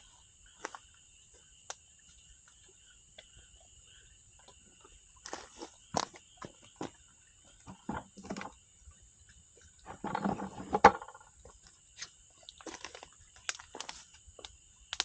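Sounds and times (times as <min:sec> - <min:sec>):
campfire crackling and popping: 0:12.6 - 0:15.0.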